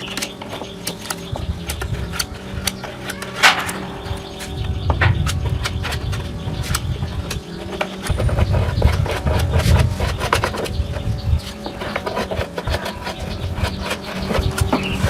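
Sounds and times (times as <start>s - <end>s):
low rumble: 3.2s - 10.0s.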